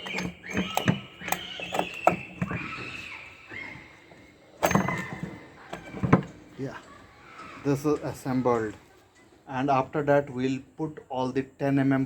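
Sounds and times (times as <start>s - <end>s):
metal knocks and clinks: 0.0s - 3.1s, 4.1s - 6.6s
metal scraping: 0.0s - 3.1s, 4.6s - 6.6s.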